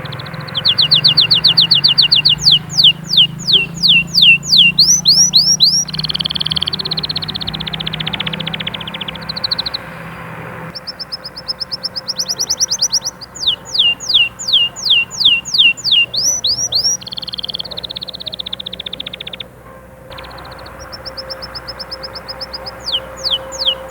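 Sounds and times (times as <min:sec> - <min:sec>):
canary singing: 0:00.0 - 0:23.9.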